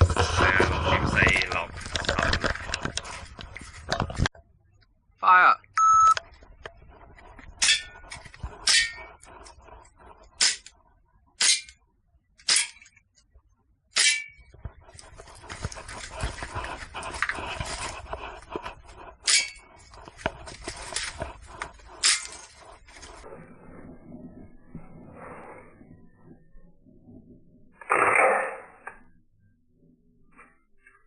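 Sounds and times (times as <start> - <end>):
rustling: 0.0 - 4.3, 14.5 - 25.6
short beep: 5.8 - 6.2.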